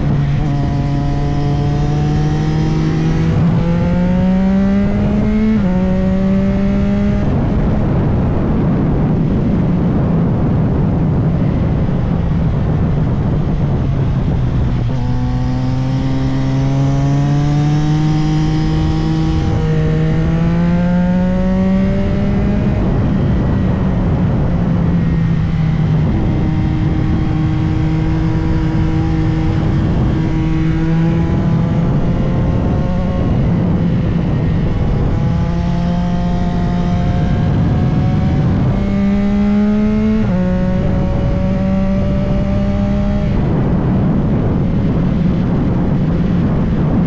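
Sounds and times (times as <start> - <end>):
motorcycle engine pulling hard: 0.0 - 47.0
wind rush: 0.0 - 47.0.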